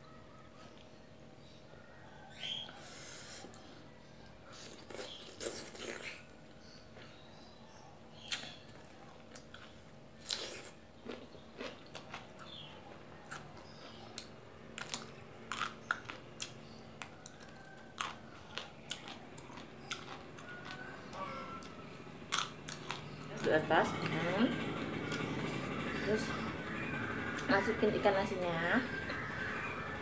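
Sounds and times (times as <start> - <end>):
person chewing with crunches: 4.5 - 7.2, 8.2 - 23.5.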